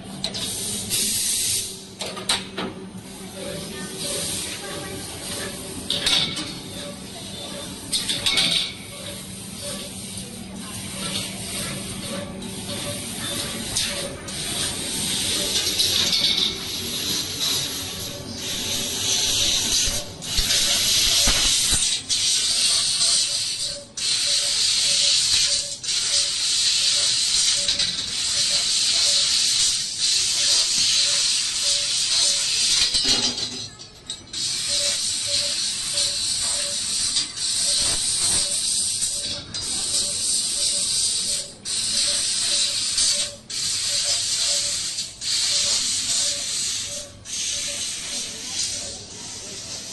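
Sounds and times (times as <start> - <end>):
laser cutter gas hissing: 0.3 - 2.4, 3.0 - 33.4, 34.3 - 49.9.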